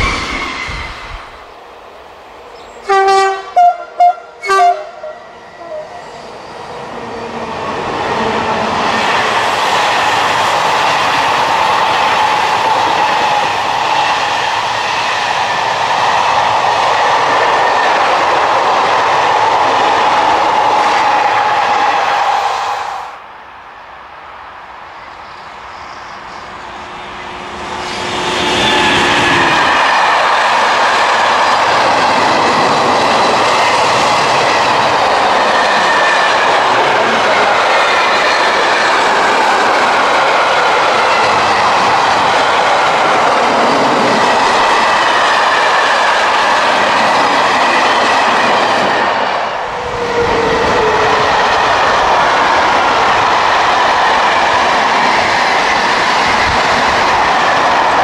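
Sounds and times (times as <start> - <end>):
freight train passing: 0.0 - 58.0
train wheels clattering on rails: 27.3 - 58.0.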